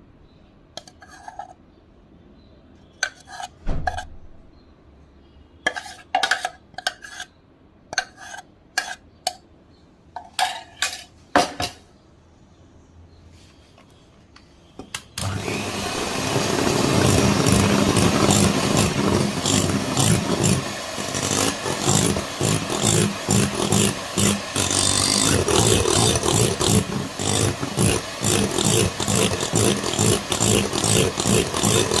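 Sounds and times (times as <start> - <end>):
electric kitchen mixer running: 15.2 - 32.0.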